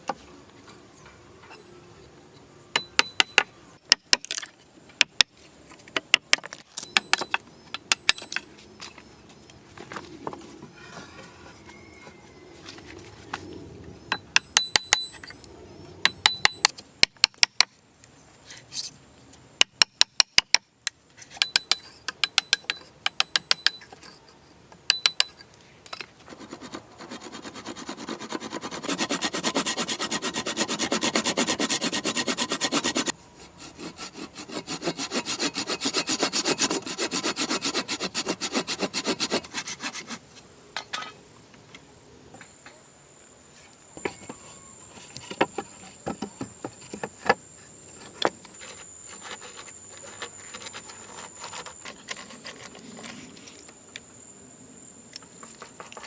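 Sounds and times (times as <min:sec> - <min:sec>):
hand saw cutting wood: 0:26.3 - 0:40.2, 0:48.6 - 0:53.3.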